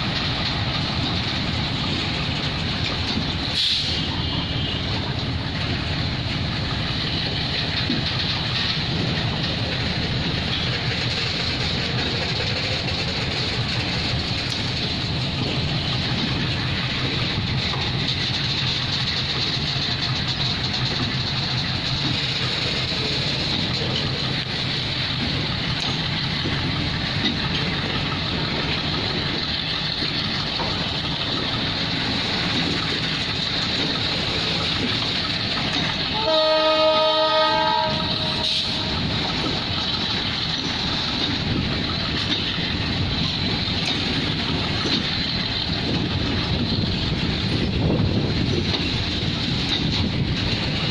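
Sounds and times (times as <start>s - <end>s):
freight train wheels rumbling: 0.0s - 50.9s
train horn: 36.1s - 38.9s.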